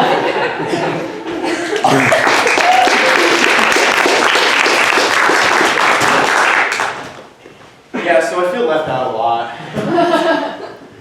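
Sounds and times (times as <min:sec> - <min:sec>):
audience applauding: 0:01.6 - 0:07.2.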